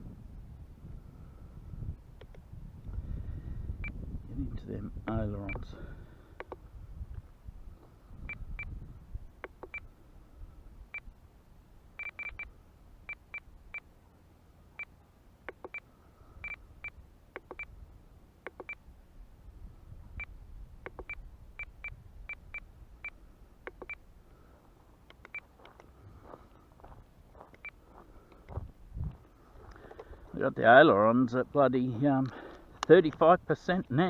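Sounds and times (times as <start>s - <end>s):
radio transmitter beeping: 5.4s - 5.7s, 12.0s - 12.5s.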